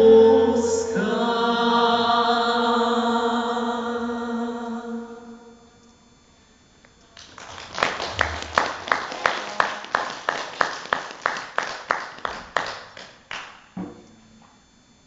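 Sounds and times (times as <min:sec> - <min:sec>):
audience applause: 0:07.2 - 0:13.6.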